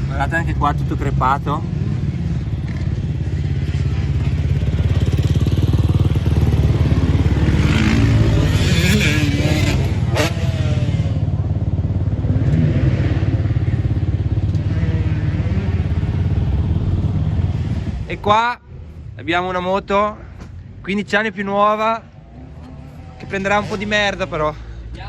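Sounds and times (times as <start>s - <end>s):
motorcycle engine running: 1.2s - 18.0s.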